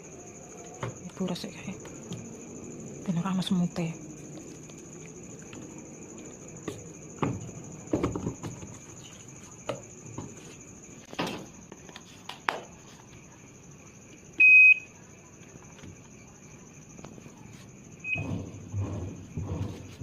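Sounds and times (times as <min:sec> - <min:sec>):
washing machine beep: 0:14.4 - 0:15.0, 0:18.0 - 0:18.4.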